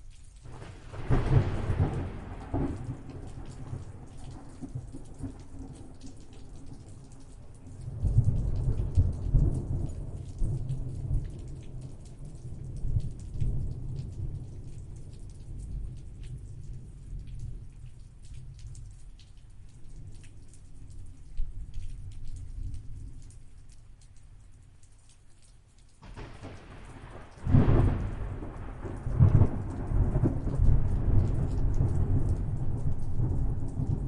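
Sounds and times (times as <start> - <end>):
rain falling: 0.0 - 34.0
thunder rumbling: 0.5 - 5.8, 26.0 - 34.0.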